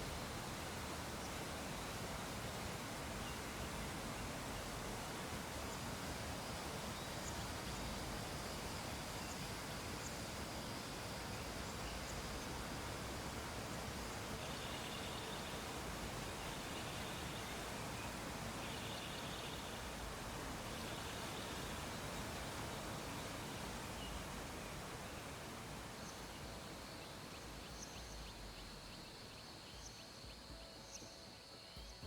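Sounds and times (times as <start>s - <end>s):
background hiss: 0.0s - 32.0s.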